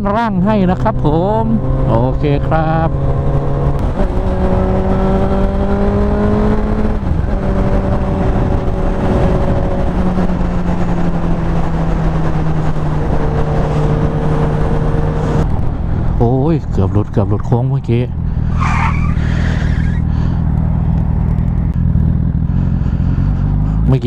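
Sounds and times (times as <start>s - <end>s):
motorcycle engine: 0.0s - 24.0s
wind rush on microphone: 2.8s - 16.2s.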